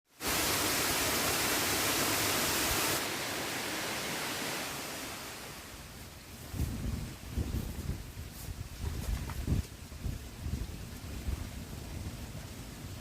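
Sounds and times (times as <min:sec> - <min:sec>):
water rushing: 0:00.1 - 0:06.4.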